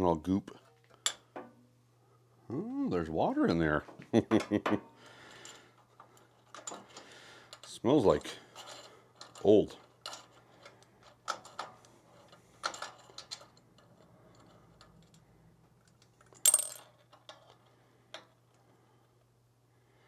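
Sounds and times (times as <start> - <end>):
faint low hum: 0.0 - 20.0
metallic clinks of small parts: 5.3 - 18.6.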